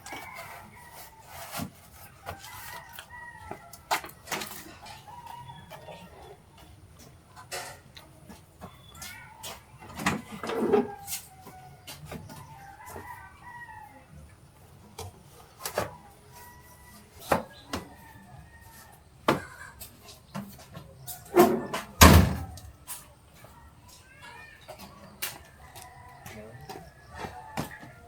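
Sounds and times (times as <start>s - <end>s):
rooster crowing: 0.0s - 1.6s, 2.3s - 6.2s, 10.4s - 14.2s, 16.3s - 19.0s, 25.4s - 28.0s.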